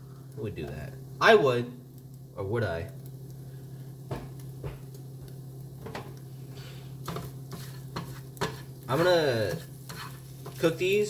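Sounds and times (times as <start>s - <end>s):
faint sizzle: 0.0s - 11.0s
utensil scraping a pan: 6.5s - 11.0s.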